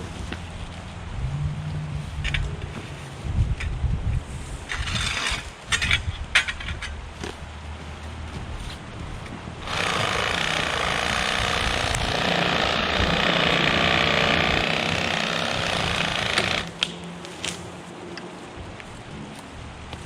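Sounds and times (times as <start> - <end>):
reciprocating saw cutting log: 9.6 - 16.9.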